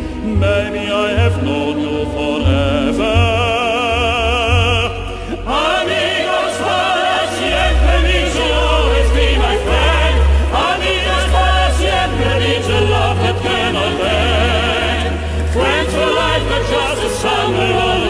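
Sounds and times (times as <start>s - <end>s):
heavy bass: 0.0s - 6.1s
choir: 0.0s - 18.0s
operatic vibrato singing: 0.0s - 18.0s
orchestra: 0.0s - 18.0s.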